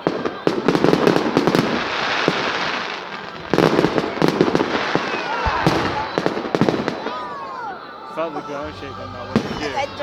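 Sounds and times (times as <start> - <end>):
sharp firework bangs: 0.0 - 7.2
fireworks crackling and popping: 0.0 - 7.4
whistling fireworks: 0.0 - 7.9
deep firework boom: 3.3 - 7.2.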